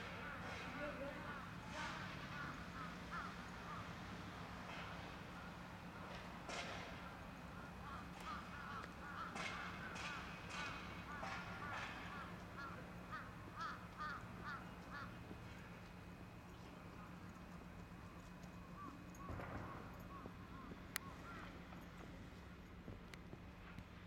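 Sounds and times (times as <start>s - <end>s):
birds calling: 0.0s - 23.7s
steady low hum: 0.0s - 24.0s.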